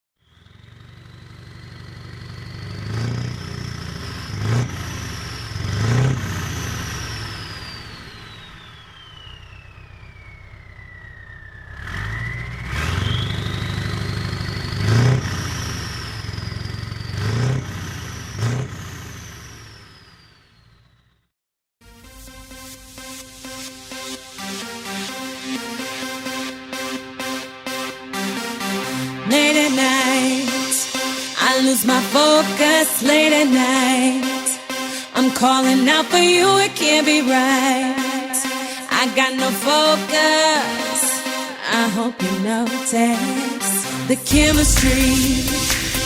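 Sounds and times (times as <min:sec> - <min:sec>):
truck diesel engines accelerating: 0:00.2 - 0:21.3, 0:24.0 - 0:41.6
turbo whistle: 0:03.5 - 0:17.2.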